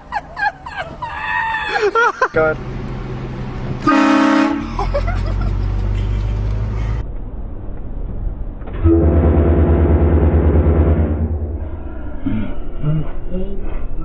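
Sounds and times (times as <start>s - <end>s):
vehicle engine rumble: 0.0s - 14.0s
vehicle horn blasting: 3.8s - 4.7s, 8.8s - 11.3s.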